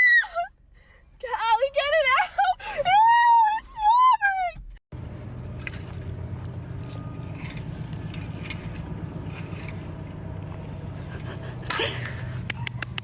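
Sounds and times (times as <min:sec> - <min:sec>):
low mechanical hum: 0:05.0 - 0:13.0.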